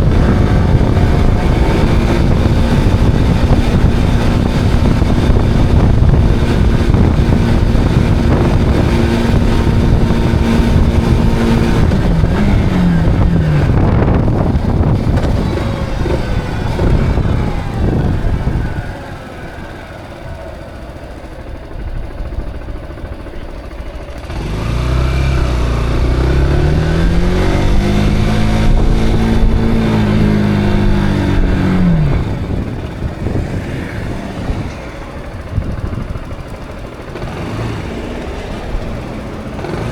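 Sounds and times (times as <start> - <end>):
motorcycle engine running: 0.0 - 39.9
wind and road rush: 0.0 - 39.9.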